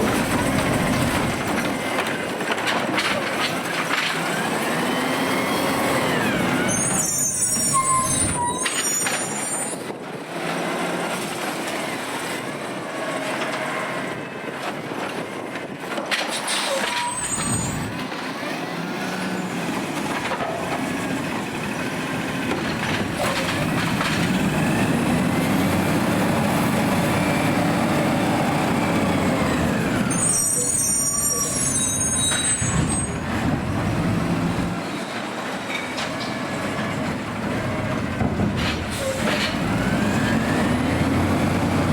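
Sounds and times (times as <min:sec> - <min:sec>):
garbage truck engine and hydraulics: 0:00.0 - 0:41.9
short high squeals: 0:06.6 - 0:09.9, 0:16.6 - 0:18.0, 0:30.1 - 0:33.2.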